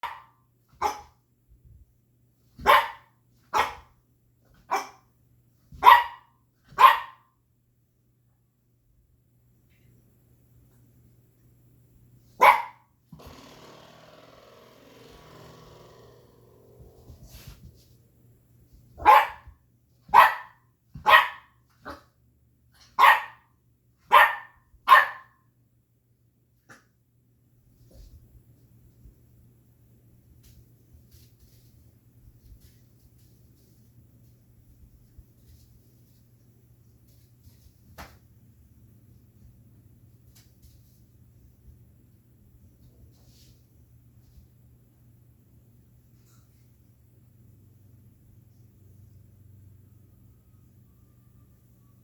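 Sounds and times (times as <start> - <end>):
puppy barking: 0.0 - 1.2, 2.6 - 3.9, 4.6 - 5.1, 5.8 - 7.3, 12.4 - 12.9, 19.0 - 22.1, 22.9 - 23.5, 24.1 - 25.4.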